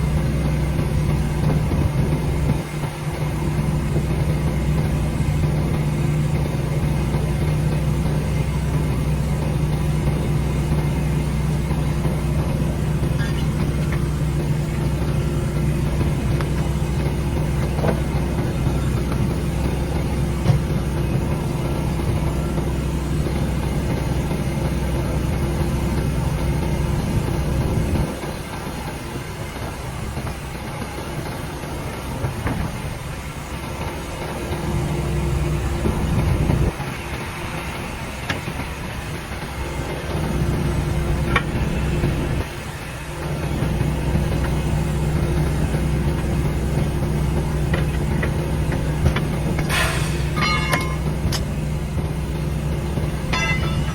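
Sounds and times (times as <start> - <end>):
engine idling: 0.0 - 53.9
knocks of work: 15.9 - 22.7, 47.4 - 52.2, 52.9 - 53.9.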